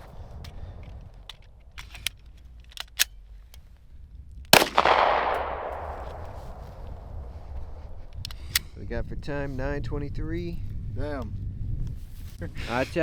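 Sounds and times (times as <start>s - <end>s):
gunshot with echo: 4.6s - 7.8s.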